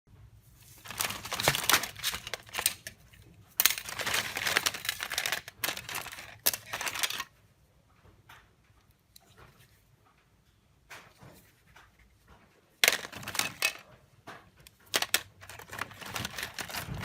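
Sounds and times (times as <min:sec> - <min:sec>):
packaging crinkling and rustling: 0:00.6 - 0:07.3, 0:12.8 - 0:17.0.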